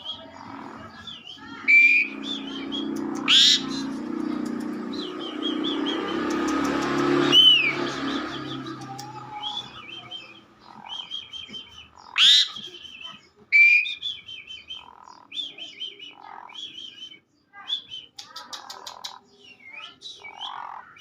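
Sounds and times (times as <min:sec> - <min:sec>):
starling warbling: 0:00.0 - 0:11.1
low hum: 0:01.7 - 0:11.0
loud sweeping whistles: 0:05.0 - 0:10.0.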